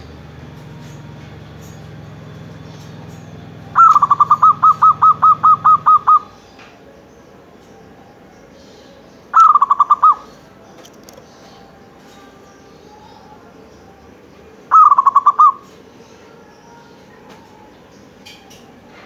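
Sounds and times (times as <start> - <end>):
dove cooing staccato: 3.7 - 6.4, 9.3 - 11.2, 14.7 - 15.8.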